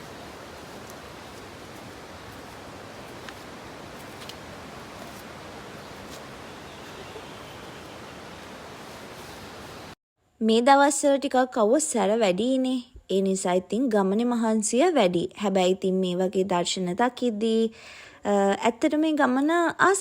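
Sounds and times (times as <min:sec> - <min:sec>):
outdoor rushing noise: 0:00.0 - 0:10.0.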